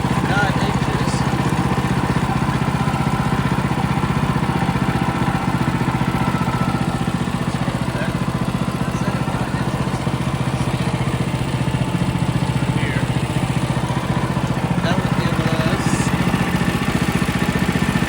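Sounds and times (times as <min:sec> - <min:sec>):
small engine running steadily: 0:00.0 - 0:18.0.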